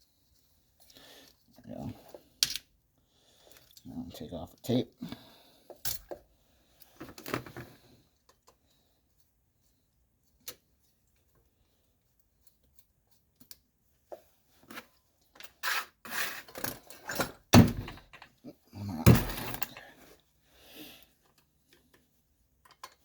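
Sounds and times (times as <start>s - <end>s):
engine parts handled with clicks: 21.2s - 23.0s.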